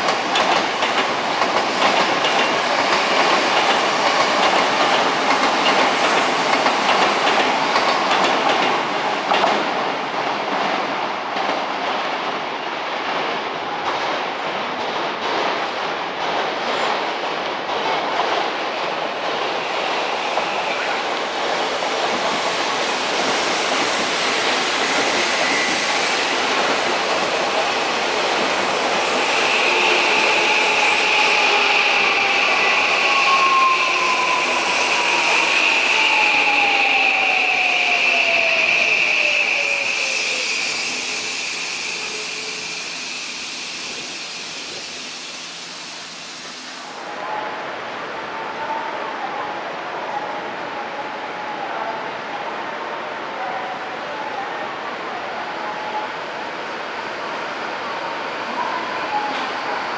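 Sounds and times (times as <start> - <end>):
train wheel clatter: 0.0 - 12.1
electric train rumbling on rails: 0.0 - 59.9
electric train whine: 18.6 - 47.3.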